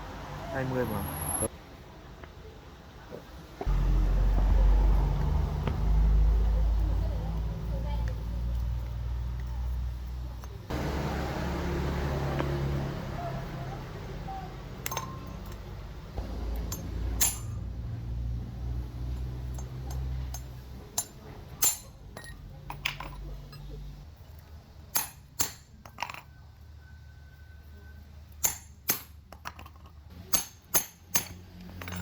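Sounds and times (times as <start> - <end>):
metal parts clinking on surface: 14.8 - 15.8, 16.5 - 17.7, 19.1 - 24.0, 24.9 - 26.4, 28.4 - 32.0.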